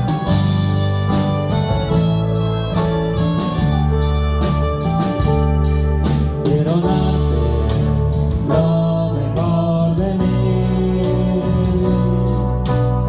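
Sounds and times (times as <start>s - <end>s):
worship band playing: 0.0s - 13.0s
person singing: 6.4s - 12.7s.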